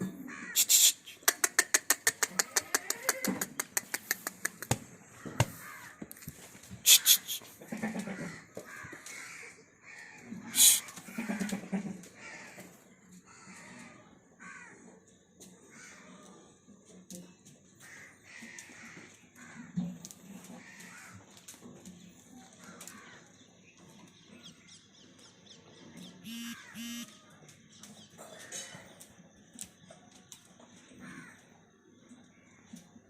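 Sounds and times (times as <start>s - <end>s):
crows cawing: 0.2s - 0.6s, 5.2s - 6.2s, 6.9s - 14.8s, 15.7s - 16.2s, 17.8s - 19.8s, 20.6s - 21.2s, 26.3s - 27.1s, 31.0s - 31.4s
loud hissy bursts: 0.6s - 1.2s, 10.6s - 10.9s.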